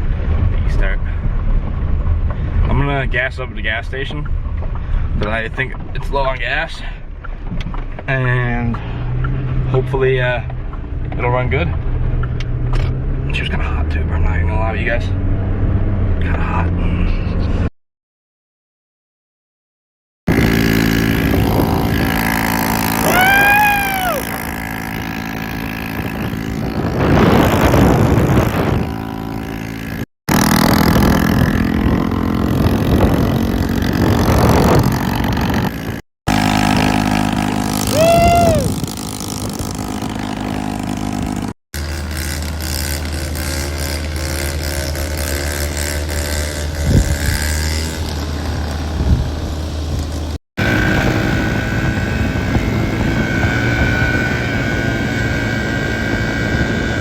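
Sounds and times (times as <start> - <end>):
vehicle engine running: 20.3 - 57.0.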